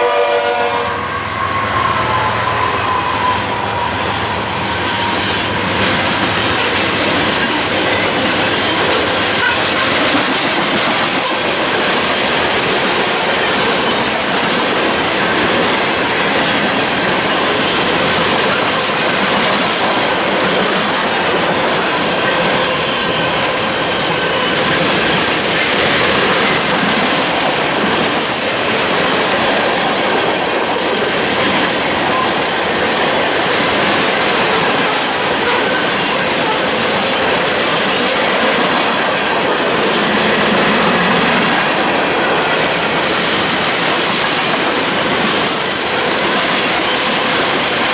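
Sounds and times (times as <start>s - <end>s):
high wheel squeal: 0.8s - 8.3s
wheel-on-rail noise: 1.0s - 47.9s.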